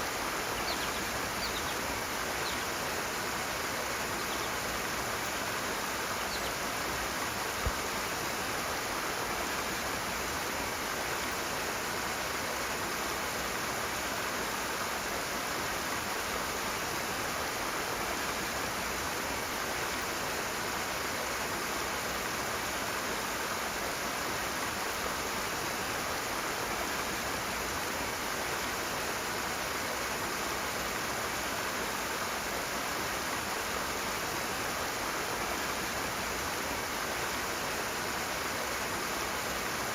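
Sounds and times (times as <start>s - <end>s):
fast-flowing stream rushing: 0.0s - 39.9s.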